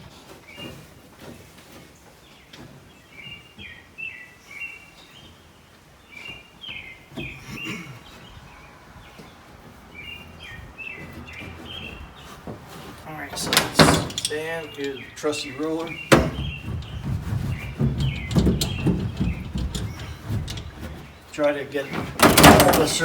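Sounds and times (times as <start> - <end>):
bird singing: 2.2 - 23.0
handling clicks and knocks: 9.0 - 23.0.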